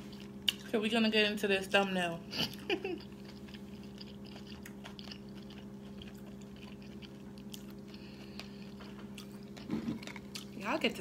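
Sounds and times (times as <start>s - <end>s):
steady low hum: 0.0s - 11.0s
close-mouthed chewing: 2.4s - 10.6s.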